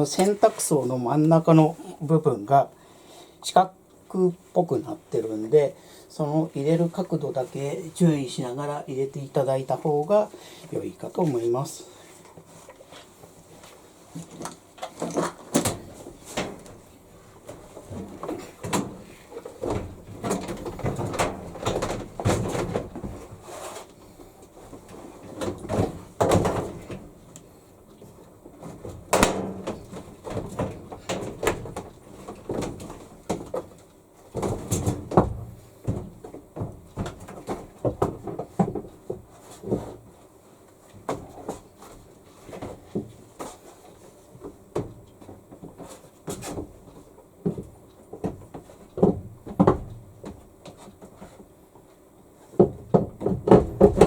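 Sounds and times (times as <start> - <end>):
washer tub knocking and scraping: 52.6 - 54.0.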